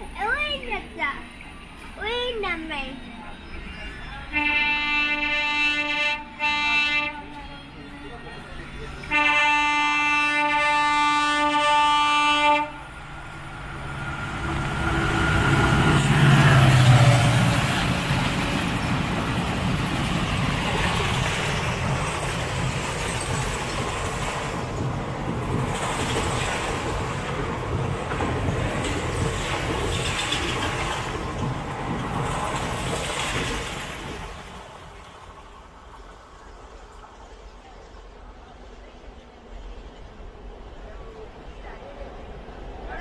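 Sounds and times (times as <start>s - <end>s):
train coaches rushing and clattering: 0.0s - 43.0s
locomotive rumbling past: 3.0s - 43.0s
train horn: 4.3s - 8.0s, 9.0s - 12.9s.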